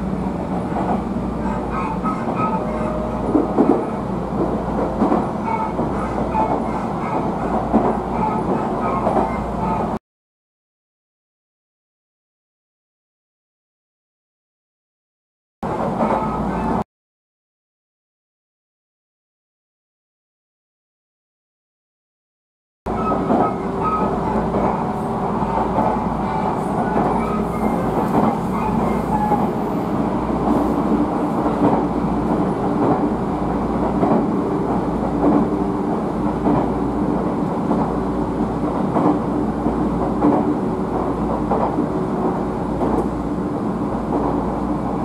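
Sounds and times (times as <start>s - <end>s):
electric train running: 22.9s - 45.0s.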